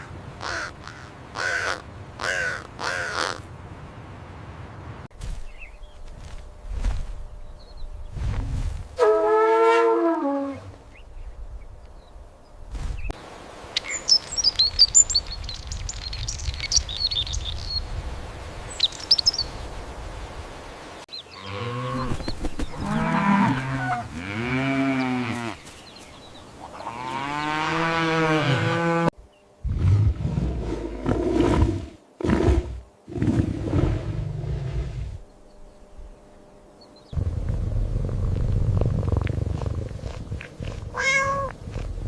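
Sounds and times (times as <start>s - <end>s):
birds chirping: 5.4s - 6.6s, 13.8s - 18.0s, 18.6s - 19.9s, 20.9s - 27.6s
cow mooing: 22.8s - 25.6s, 26.8s - 29.1s.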